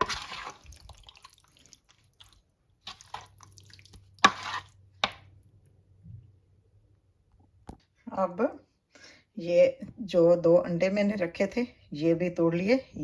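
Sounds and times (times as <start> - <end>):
wet squelching of raw chicken: 0.0 - 5.3.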